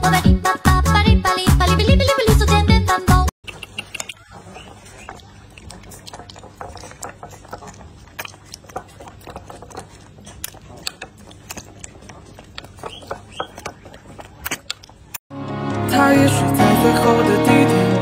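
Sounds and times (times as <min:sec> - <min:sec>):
dog lapping water: 0:04.1 - 0:15.1.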